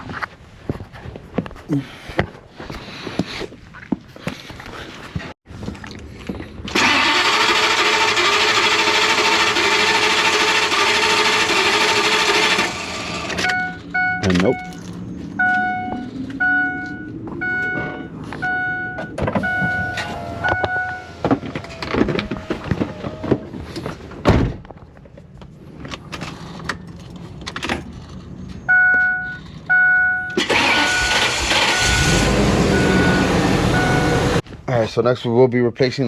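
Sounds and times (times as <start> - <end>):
vehicle warning chime beeping: 13.4 - 21.2, 28.6 - 34.4.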